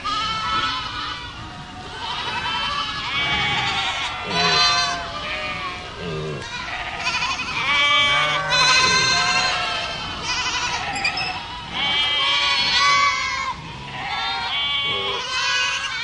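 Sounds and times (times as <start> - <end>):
goats bleating: 0.0 - 16.0.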